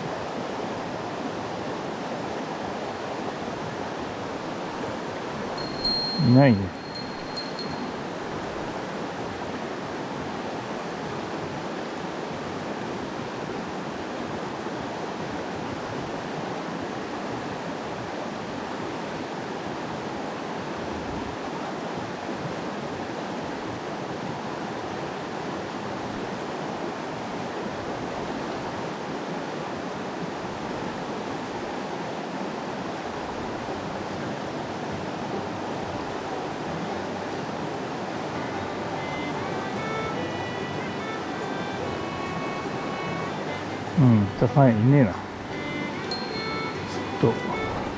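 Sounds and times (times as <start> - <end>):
mountain stream rushing: 0.0 - 47.9.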